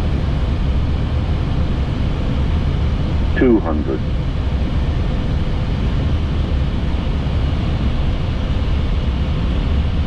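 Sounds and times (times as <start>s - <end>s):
airflow and engine rush: 0.0s - 10.0s
faint steady hum: 0.0s - 10.0s.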